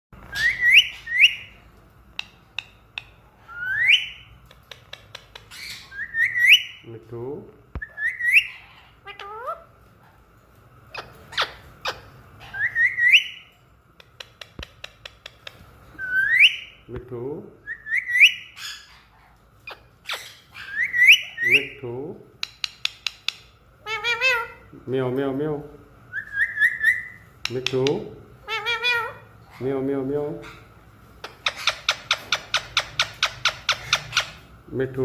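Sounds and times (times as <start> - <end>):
parrot chirps and clicks: 2.1 - 6.8, 10.9 - 16.7, 22.4 - 24.4, 26.2 - 29.0, 31.2 - 34.4.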